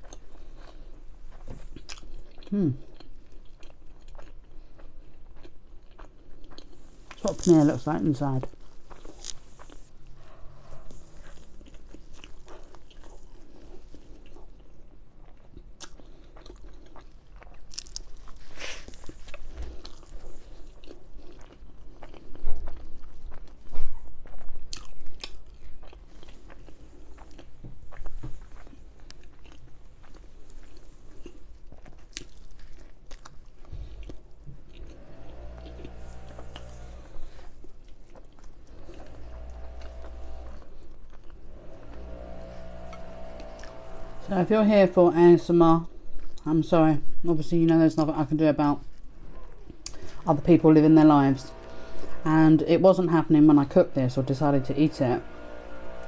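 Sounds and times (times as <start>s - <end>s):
crunching and chewing bread: 0.0s - 44.8s, 45.4s - 47.3s, 48.0s - 52.4s
low motor hum: 33.7s - 37.8s, 38.5s - 45.5s, 49.2s - 56.0s.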